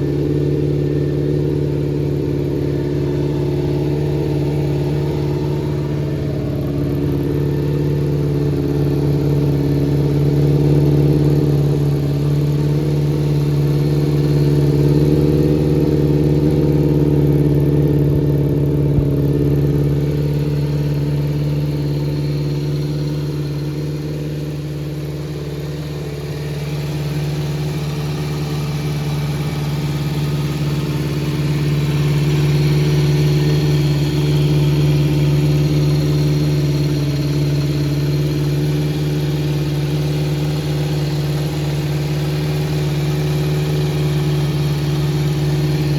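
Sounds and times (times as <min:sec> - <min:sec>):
motorcycle engine idling: 0:00.0 - 0:45.9.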